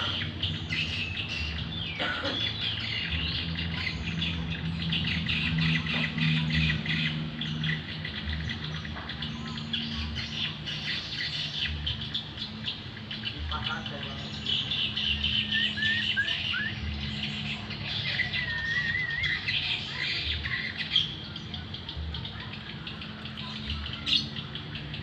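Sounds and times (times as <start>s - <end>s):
songbirds chirping: 0.0s - 25.0s.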